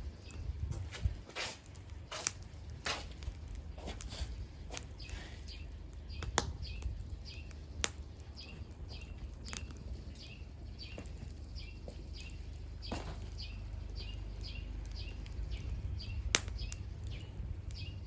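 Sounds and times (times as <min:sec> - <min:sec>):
fire crackling and popping: 0:00.0 - 0:18.0
bird chirping: 0:04.7 - 0:18.0.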